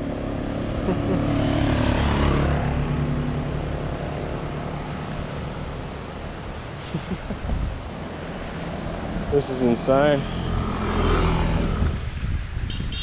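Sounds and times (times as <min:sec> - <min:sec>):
vehicle engine passing by: 0:00.0 - 0:06.2, 0:07.8 - 0:12.6.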